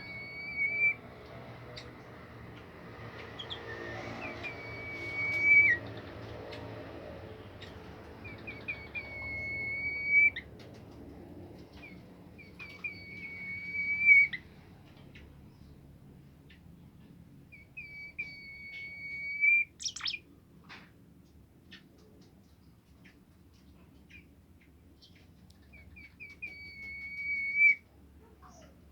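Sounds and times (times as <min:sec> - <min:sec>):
songbird whistling: 0:00.0 - 0:01.0, 0:03.4 - 0:05.9, 0:08.2 - 0:10.4, 0:12.4 - 0:14.4, 0:17.5 - 0:20.2, 0:25.7 - 0:27.8
bird chirps and clicks: 0:19.8 - 0:20.2.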